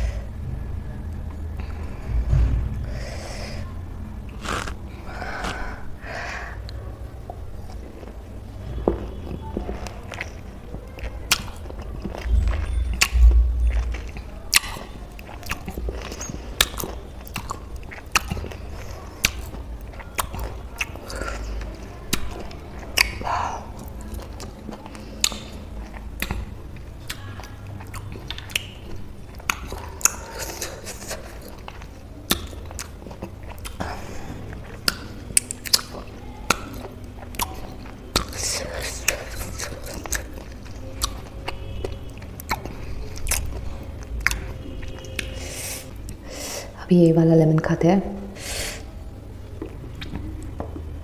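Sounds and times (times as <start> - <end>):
chewing juicy fruit: 3.6 - 46.3, 49.0 - 51.0
wet mouth smacking and clicking: 13.8 - 18.6, 22.1 - 33.8, 34.6 - 43.6, 44.2 - 46.2, 49.6 - 50.9.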